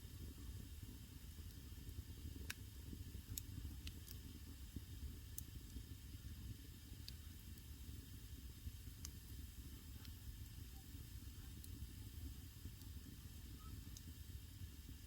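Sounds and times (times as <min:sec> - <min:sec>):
burning wood crackling pops: 0:00.0 - 0:15.0
low rush of flames: 0:00.0 - 0:15.0.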